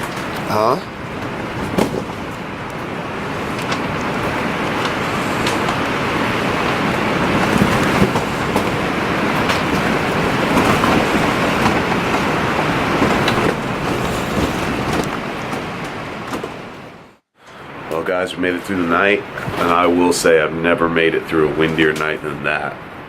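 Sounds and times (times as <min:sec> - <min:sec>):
strong wind buffeting: 0:00.0 - 0:23.0
structure knocking: 0:01.1 - 0:02.4, 0:03.6 - 0:16.6.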